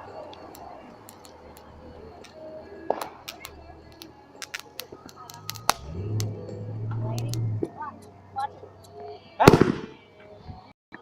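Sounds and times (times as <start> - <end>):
firework crackling: 0.0 - 8.1
low steady hum: 0.0 - 9.4.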